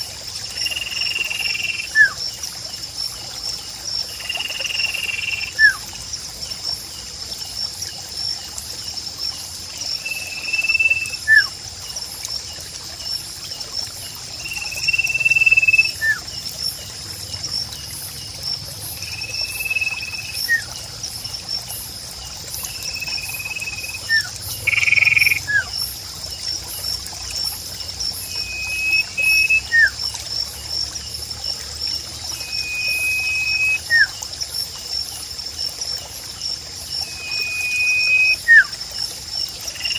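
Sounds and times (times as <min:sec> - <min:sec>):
pulsing insect trill: 0:00.0 - 0:39.9
trickling water: 0:00.0 - 0:39.9.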